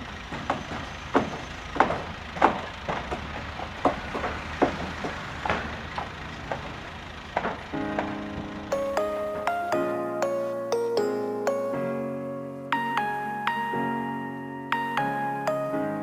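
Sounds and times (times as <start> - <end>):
sharp irregular knocks: 0.4 - 6.8, 7.4 - 9.6.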